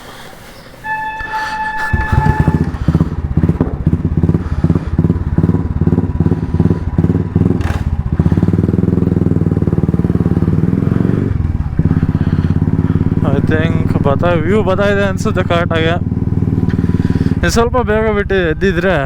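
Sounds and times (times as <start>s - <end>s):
motorcycle engine thumping: 1.8s - 17.8s.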